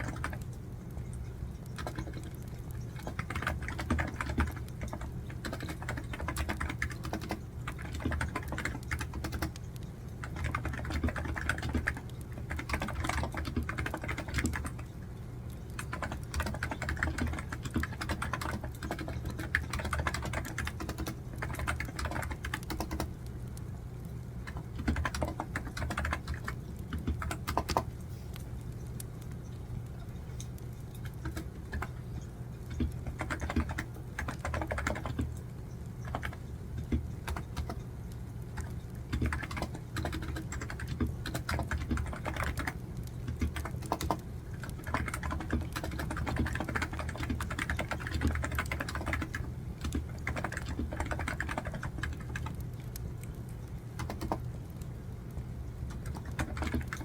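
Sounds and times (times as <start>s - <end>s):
wood fire crackling: 0.0s - 3.3s, 14.6s - 16.4s, 20.7s - 34.5s, 35.2s - 41.4s, 42.5s - 44.9s, 52.2s - 56.3s
steady low hum: 0.0s - 57.0s.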